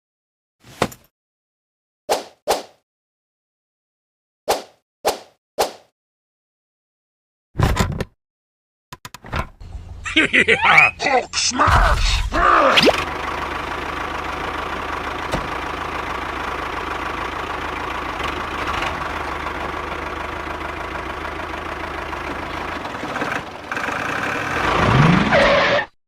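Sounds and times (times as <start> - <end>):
engine idling with low rattle: 9.6 - 10.2, 12.3 - 24.9.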